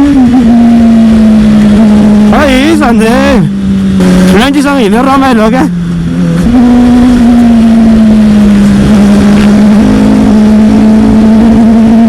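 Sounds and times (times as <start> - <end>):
motorcycle engine running: 0.0 - 12.0
wind rumble on microphone: 5.6 - 12.0.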